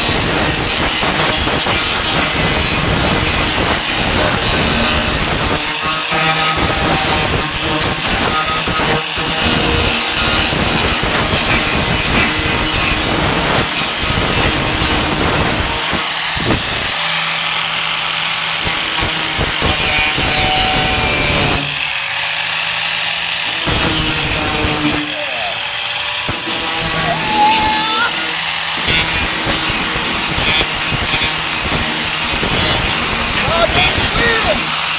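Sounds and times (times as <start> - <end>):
angle grinder on sheet metal: 0.0 - 34.9.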